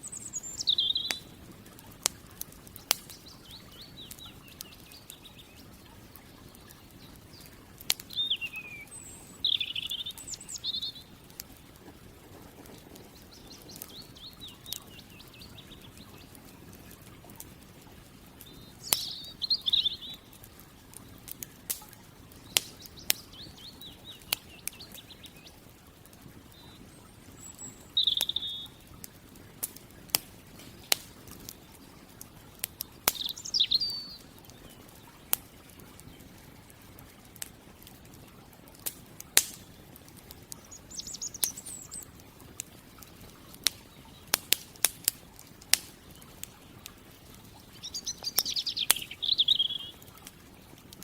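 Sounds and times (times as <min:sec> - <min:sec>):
bird chirping: 0:00.0 - 0:01.4, 0:02.6 - 0:11.8, 0:12.9 - 0:17.0, 0:18.4 - 0:20.4, 0:22.4 - 0:25.7, 0:26.5 - 0:28.9, 0:33.0 - 0:36.4, 0:40.6 - 0:42.2, 0:47.4 - 0:50.1
campfire crackling and popping: 0:00.0 - 0:51.0.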